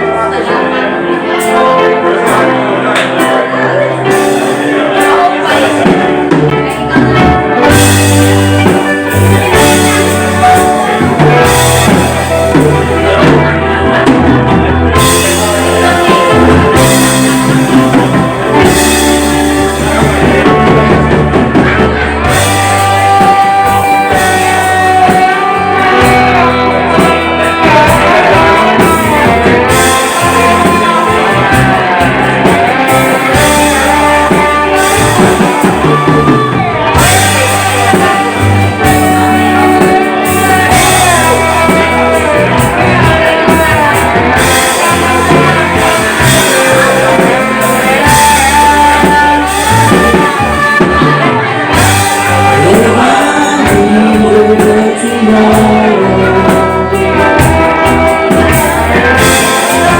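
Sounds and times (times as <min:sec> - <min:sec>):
drums: 0:00.0 - 0:59.9
electric guitar: 0:00.0 - 0:59.9
person singing: 0:00.0 - 0:59.9.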